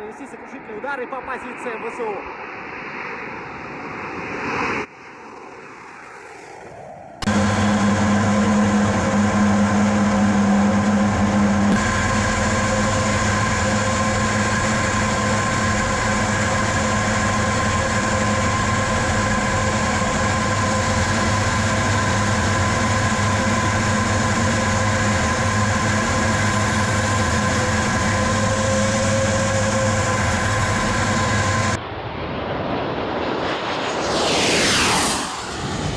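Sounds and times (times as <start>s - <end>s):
jet engines droning: 7.2s - 35.9s
rushing sound: 33.4s - 35.9s.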